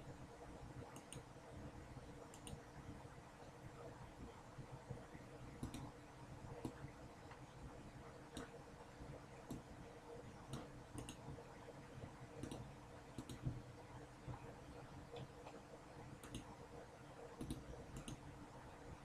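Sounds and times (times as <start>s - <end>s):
low steady hum: 0.0s - 19.0s
faint sharp clicks: 0.9s - 1.3s, 2.3s - 2.6s, 10.5s - 11.2s, 12.4s - 13.5s, 16.2s - 16.5s, 17.4s - 18.2s.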